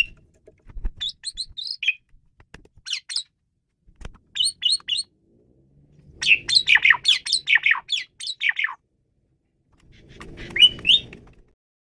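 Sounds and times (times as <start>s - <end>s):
starling singing: 1.0s - 2.0s, 2.9s - 3.3s, 4.3s - 5.1s, 6.1s - 8.8s, 10.0s - 11.2s.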